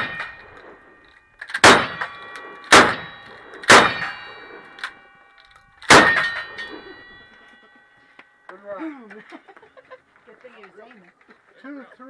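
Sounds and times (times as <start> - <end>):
gunshots: 0.0 - 0.8, 1.5 - 4.9, 5.8 - 6.7
steel target ringing clang: 0.0 - 8.5.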